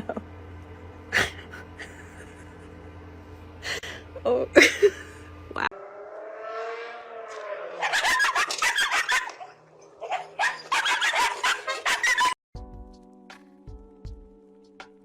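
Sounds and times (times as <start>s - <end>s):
pet animal crying and yelping: 7.7s - 12.4s.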